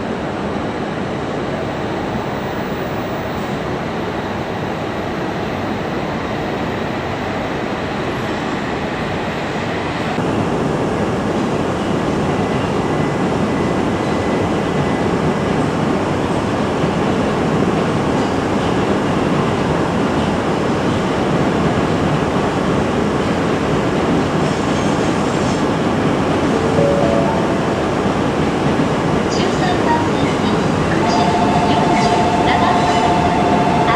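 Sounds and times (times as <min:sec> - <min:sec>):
train rushing past: 0:23.8 - 0:33.9.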